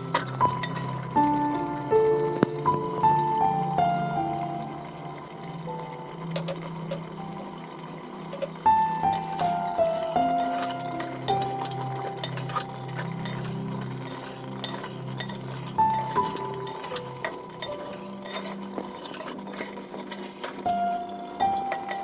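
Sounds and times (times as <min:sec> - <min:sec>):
light sizzle: 0:00.0 - 0:22.0
spoon stirring frying food: 0:00.0 - 0:22.0
spoon clinking against pot: 0:16.2 - 0:19.3.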